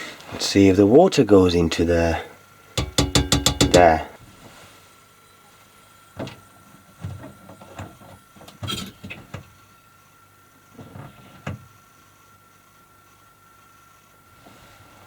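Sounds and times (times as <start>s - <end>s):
knocks and clunks of handled things: 2.8s - 4.0s, 7.0s - 9.5s
faint steady high tone: 5.1s - 6.2s.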